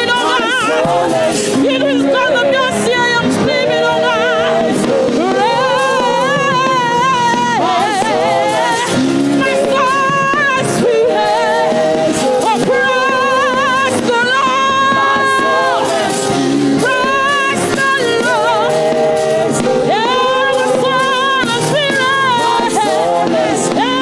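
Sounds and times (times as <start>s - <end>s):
instrumental backing: 0.0s - 24.0s
woman singing with vibrato: 0.0s - 24.0s.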